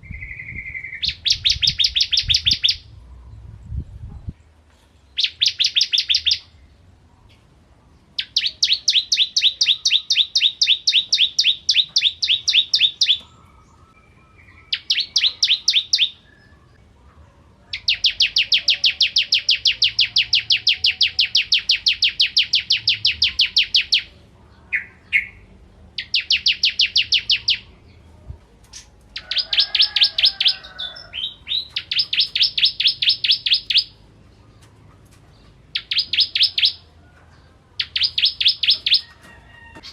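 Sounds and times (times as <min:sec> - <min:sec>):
bird singing fast trills: 0:00.0 - 0:03.0, 0:05.2 - 0:06.6, 0:08.2 - 0:16.8, 0:17.8 - 0:27.9, 0:28.7 - 0:34.1, 0:35.7 - 0:36.9, 0:37.8 - 0:39.1.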